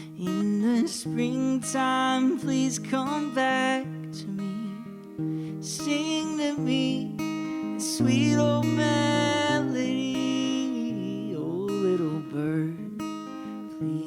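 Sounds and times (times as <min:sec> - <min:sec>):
acoustic guitar playing slow song: 0:00.0 - 0:14.0
wordless voice melody: 0:00.0 - 0:14.0.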